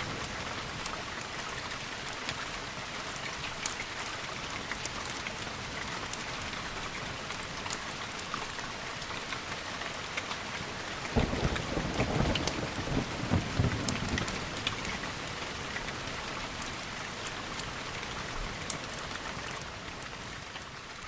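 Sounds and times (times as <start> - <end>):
steady rain: 0.0 - 21.0
low thunder rumble: 11.2 - 15.1.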